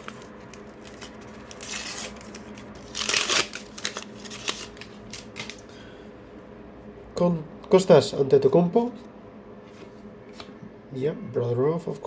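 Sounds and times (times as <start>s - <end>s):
paper packet tearing: 0.0s - 5.6s
wrapper crinkling: 0.0s - 5.7s.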